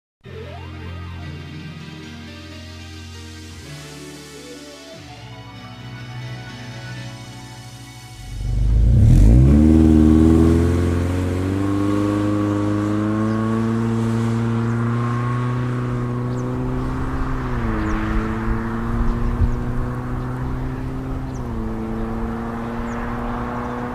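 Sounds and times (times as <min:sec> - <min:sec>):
music: 0:00.2 - 0:13.5
car exhaust revving and idling: 0:08.1 - 0:23.9.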